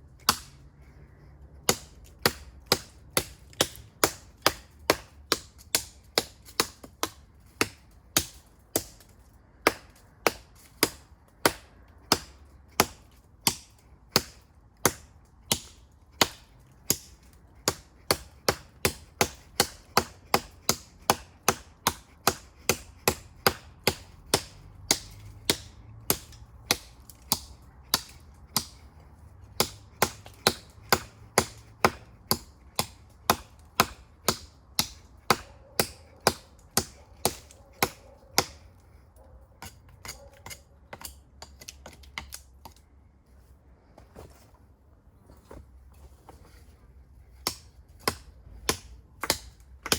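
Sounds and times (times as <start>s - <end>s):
knife chopping into tree trunk: 0.2s - 0.6s, 1.6s - 38.7s, 47.3s - 49.9s.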